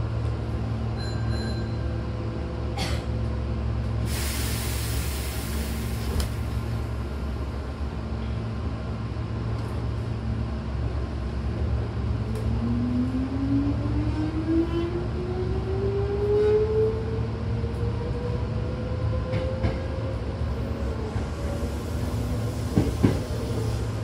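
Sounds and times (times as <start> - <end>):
train low hum: 0.0 - 24.0
compressed air hiss: 4.1 - 6.1.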